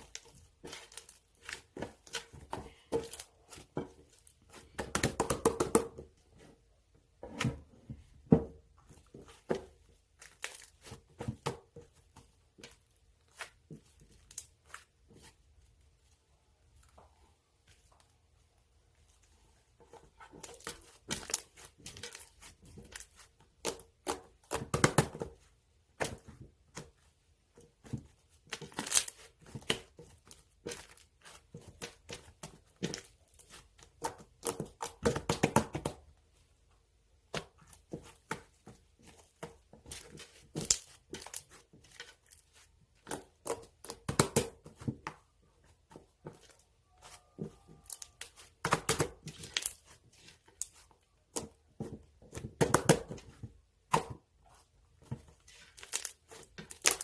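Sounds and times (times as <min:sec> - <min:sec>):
candy wrappers crinkling and tearing: 0:55.6 - 0:57.0.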